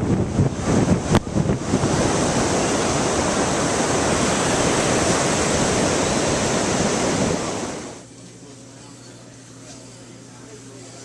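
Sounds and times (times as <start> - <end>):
ocean surf washing in: 0.0 - 8.0
wind buffeting microphone: 0.0 - 8.0.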